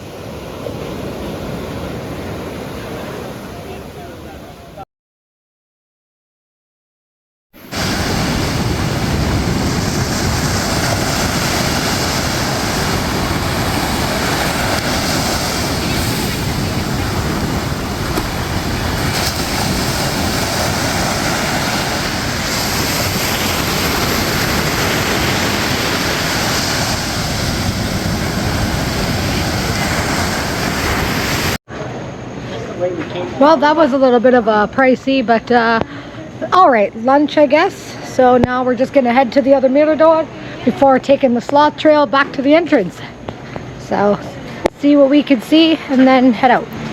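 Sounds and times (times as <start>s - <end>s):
ocean surf breaking: 0.0s - 4.8s, 7.6s - 31.6s
wind rumbling on microphone: 7.6s - 31.6s.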